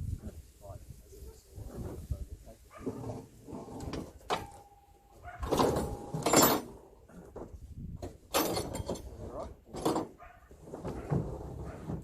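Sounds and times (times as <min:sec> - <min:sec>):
heavy metal parts clanking: 0:05.4 - 0:07.4, 0:08.0 - 0:12.0.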